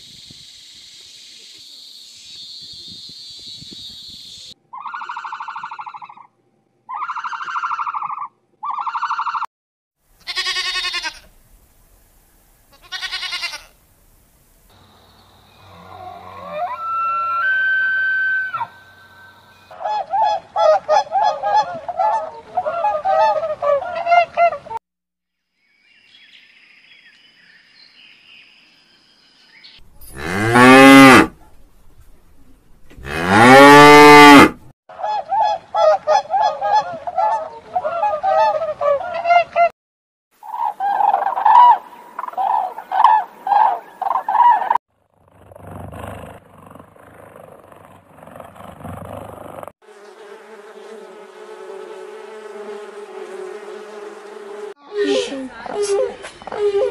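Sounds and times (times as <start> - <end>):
cow mooing: 15.6 - 17.3, 30.1 - 31.4, 33.0 - 34.6.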